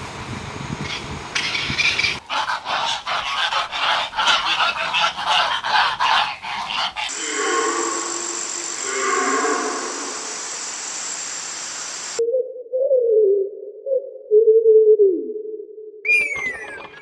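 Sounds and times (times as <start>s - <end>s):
birds calling rapidly: 0.8s - 12.2s.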